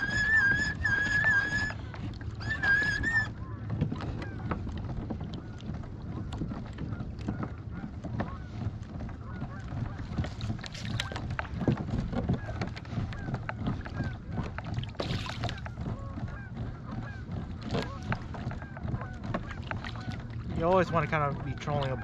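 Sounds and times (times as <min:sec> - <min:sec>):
boat engine rumble: 0:00.0 - 0:22.0
water slapping against hull: 0:00.0 - 0:22.0.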